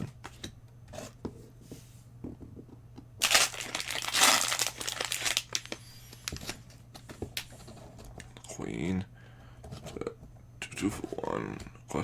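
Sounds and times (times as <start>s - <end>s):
plastic wrapper crinkling: 3.2s - 6.6s.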